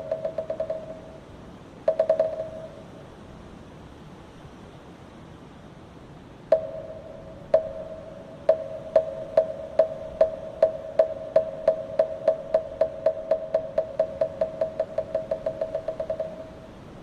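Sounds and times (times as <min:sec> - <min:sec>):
wooden fish struck with mallet: 0:00.0 - 0:01.2, 0:01.9 - 0:02.8, 0:06.5 - 0:16.6.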